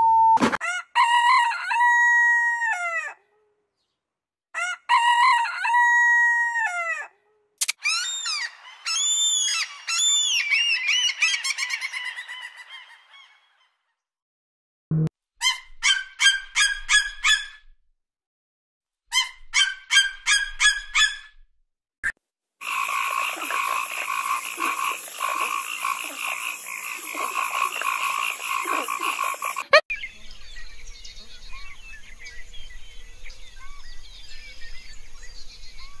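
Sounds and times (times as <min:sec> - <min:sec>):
eagle yelping calls: 0:07.8 - 0:12.1
frogs croaking chorus: 0:22.6 - 0:29.8.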